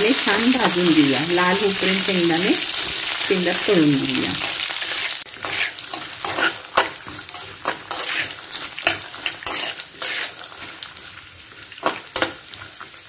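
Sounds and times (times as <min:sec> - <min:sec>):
peanuts sizzling in hot oil: 0:00.0 - 0:13.0
metal spatula scraping pan: 0:04.5 - 0:10.8.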